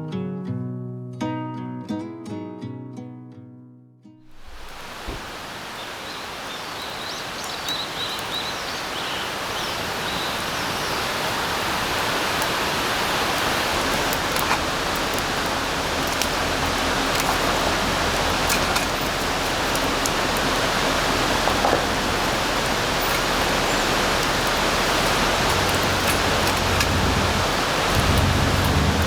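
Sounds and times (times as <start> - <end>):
rain falling on forest: 4.2 - 29.0
birds chirping faintly: 4.3 - 29.0
sharp drip ticks: 6.4 - 10.2, 11.9 - 29.0.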